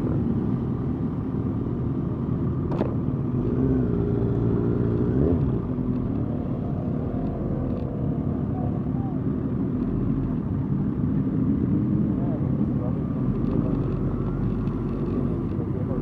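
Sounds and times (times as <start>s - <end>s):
motorcycle engines running: 0.0s - 16.0s.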